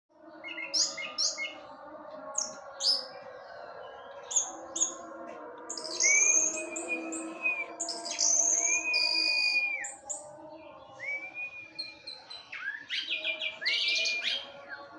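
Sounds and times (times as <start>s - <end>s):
bird whistling long note: 5.8s - 10.2s.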